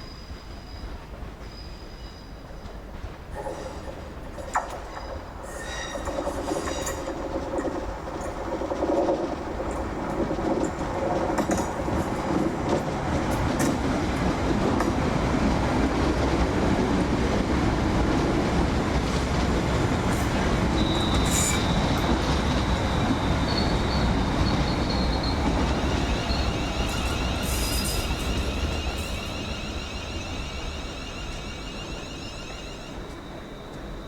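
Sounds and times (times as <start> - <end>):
train wheels rumbling: 0.0 - 34.0
high wheel squeal: 4.8 - 7.2, 20.0 - 34.0.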